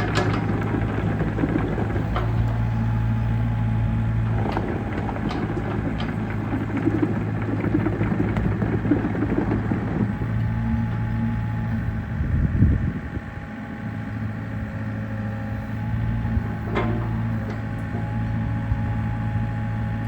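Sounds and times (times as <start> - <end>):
excavator diesel engine running: 0.0 - 20.0
short clicks and knocks: 16.6 - 18.2.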